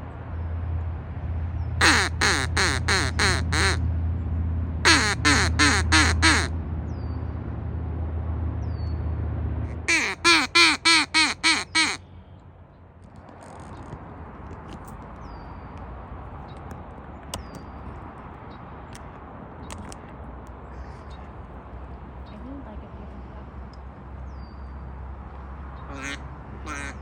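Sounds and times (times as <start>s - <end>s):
duck quacking harshly: 1.8s - 3.8s, 4.9s - 6.5s, 9.7s - 12.0s, 25.9s - 27.0s.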